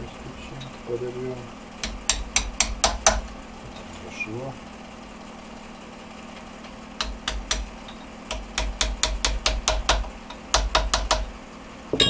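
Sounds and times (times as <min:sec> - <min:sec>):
hammer tapping on metal: 0:01.8 - 0:03.3, 0:07.0 - 0:11.3.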